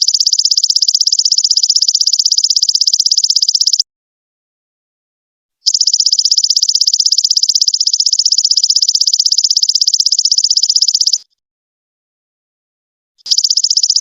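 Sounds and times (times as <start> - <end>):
insect high trill: 0.0 - 3.8, 5.7 - 11.2, 13.3 - 14.0.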